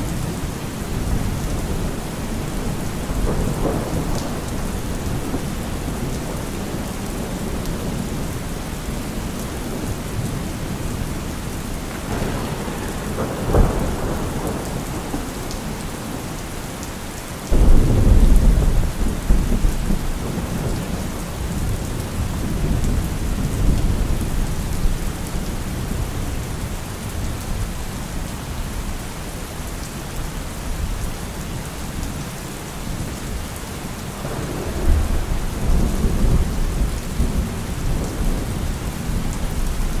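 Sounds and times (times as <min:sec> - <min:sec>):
thunder clap rumbling: 0:00.0 - 0:26.4, 0:33.8 - 0:40.0
heavy rain: 0:00.0 - 0:40.0
thunder crack: 0:00.1 - 0:08.3, 0:11.6 - 0:16.8, 0:17.5 - 0:24.3, 0:34.1 - 0:40.0.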